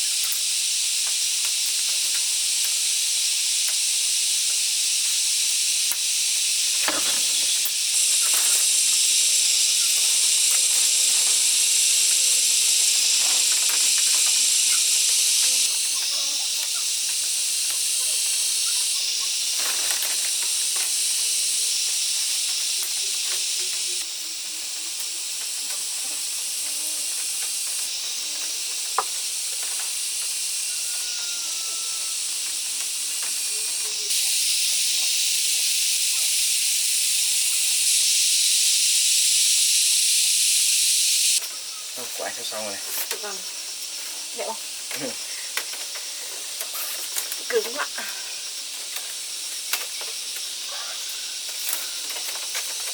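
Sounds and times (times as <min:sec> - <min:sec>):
high-pitched hiss: 0:00.0 - 0:52.9.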